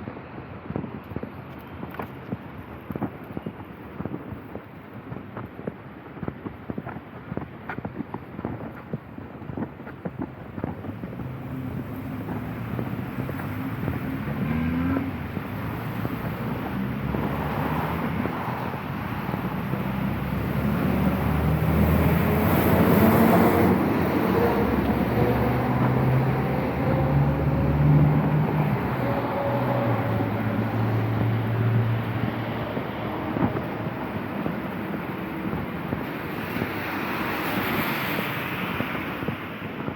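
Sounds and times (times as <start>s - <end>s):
vehicle engine humming: 10.1s - 36.3s.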